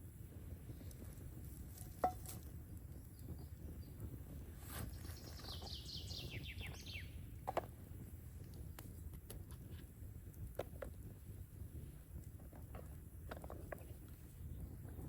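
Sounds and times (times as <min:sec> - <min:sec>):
low outdoor rumble: 0:00.0 - 0:15.0
songbird whistled notes: 0:04.8 - 0:07.2.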